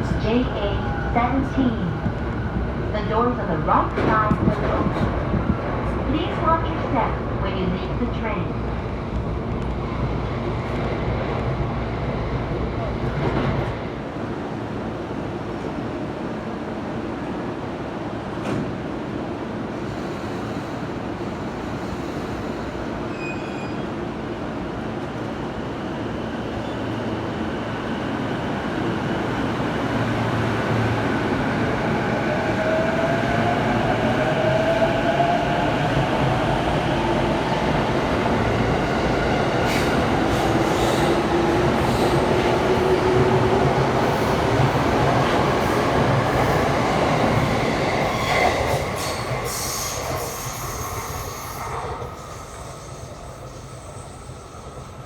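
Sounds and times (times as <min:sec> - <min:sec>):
train wheels rumbling on rail: 0:00.0 - 0:14.8, 0:18.2 - 0:55.0.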